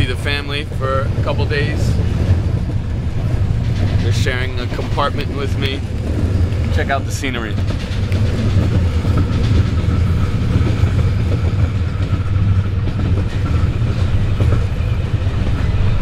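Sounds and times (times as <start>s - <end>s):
train wheels rumbling on rails: 0.0s - 16.0s
carriage rattling: 2.0s - 14.7s.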